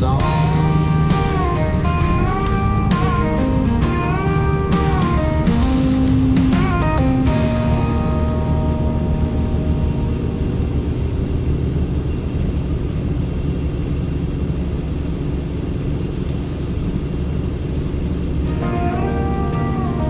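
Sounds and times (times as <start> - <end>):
music: 0.0 - 11.4, 18.5 - 20.0
car driving on wet road: 0.0 - 20.0.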